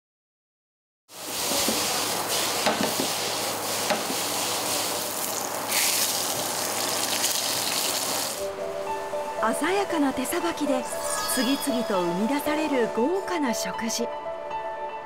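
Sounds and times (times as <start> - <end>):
food sizzling in hot oil: 1.1 - 8.5.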